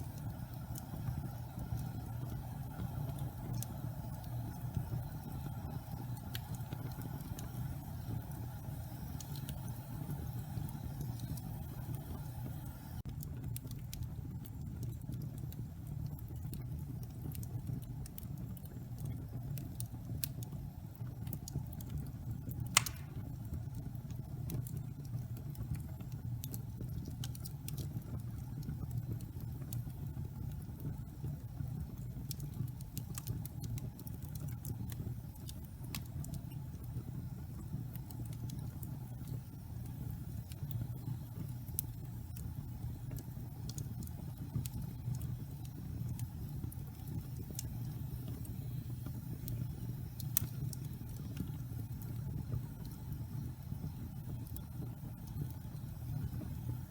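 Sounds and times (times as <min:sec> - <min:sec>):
log fire burning: 0:00.0 - 0:56.9
sharp loud pop from fire: 0:22.7 - 0:23.3.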